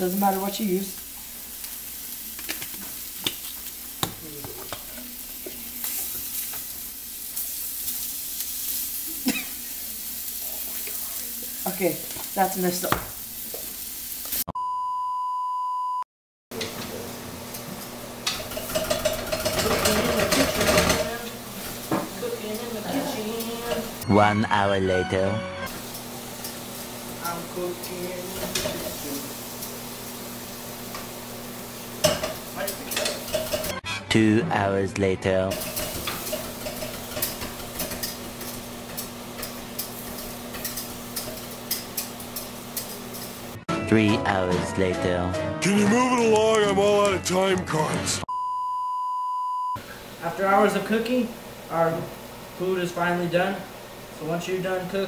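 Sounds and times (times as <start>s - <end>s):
food sizzling in a pan: 0.0s - 14.5s, 16.6s - 24.0s, 25.7s - 33.8s, 35.5s - 43.6s, 49.8s - 55.0s
steady test tone beep: 14.6s - 16.0s, 48.3s - 49.8s
utensils clattering: 16.6s - 24.0s, 25.7s - 29.8s, 31.8s - 33.8s, 35.5s - 43.6s.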